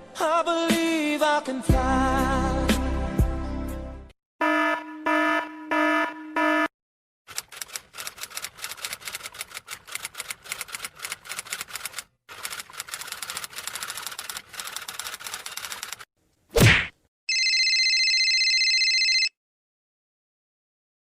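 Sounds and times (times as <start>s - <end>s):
rapid keyboard typing: 7.3s - 16.1s.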